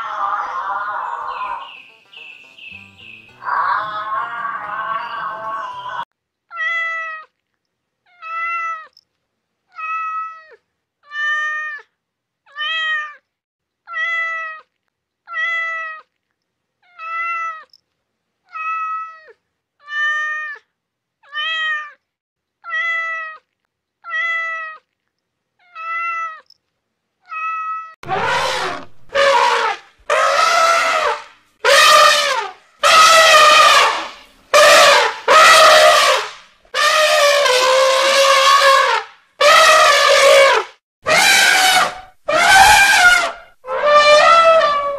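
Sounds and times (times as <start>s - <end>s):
elephant trumpeting: 0.0s - 1.8s, 3.4s - 6.0s, 28.0s - 44.9s
kitten meowing: 22.6s - 23.4s.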